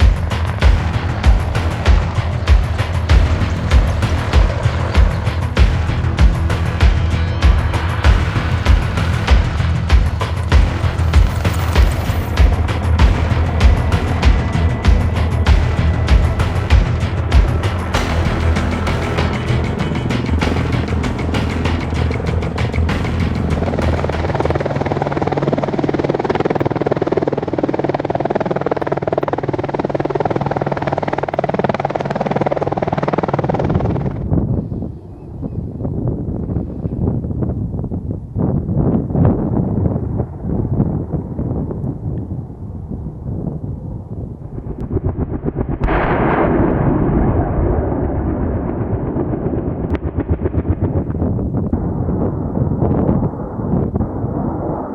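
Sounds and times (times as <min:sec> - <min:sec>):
rush of noise: 0:00.0 - 0:28.0, 0:39.4 - 0:54.9
dull rumble: 0:00.0 - 0:28.4
helicopter rotor drone: 0:00.0 - 0:35.4.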